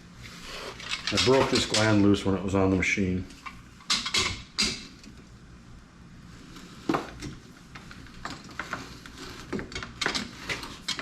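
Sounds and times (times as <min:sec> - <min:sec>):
hand tools clinking on metal: 0:00.8 - 0:02.0.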